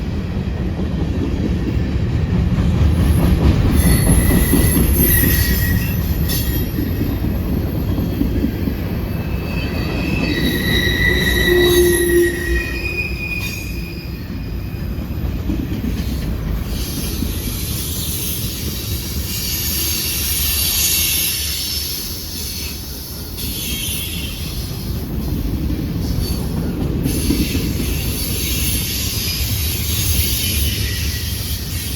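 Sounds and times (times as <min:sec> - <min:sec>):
freight train rumbling: 0:00.0 - 0:31.9
train wheels squealing on rail: 0:03.0 - 0:31.9.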